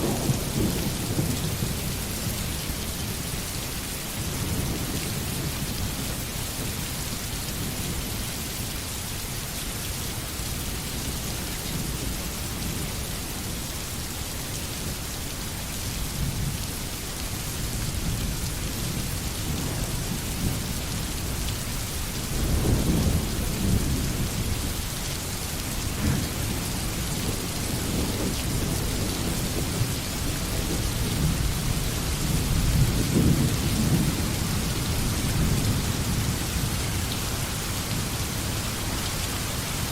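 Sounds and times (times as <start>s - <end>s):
thunder rumbling: 0.0s - 3.0s, 25.8s - 38.5s
rain hissing on foliage: 0.0s - 39.9s.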